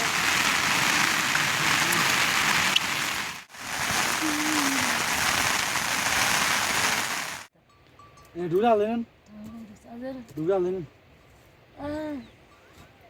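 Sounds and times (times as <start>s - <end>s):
heavy rain falling: 0.0s - 7.5s.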